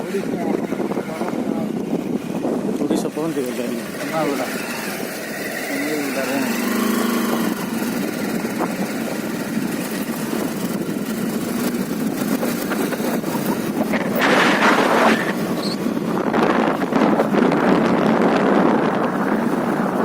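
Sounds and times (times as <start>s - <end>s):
motorcycle engine running: 0.0s - 20.0s
wind rushing over microphone: 0.0s - 20.0s.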